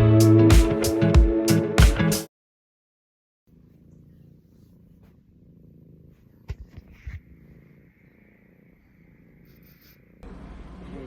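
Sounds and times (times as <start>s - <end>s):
cat purring: 3.5s - 11.0s.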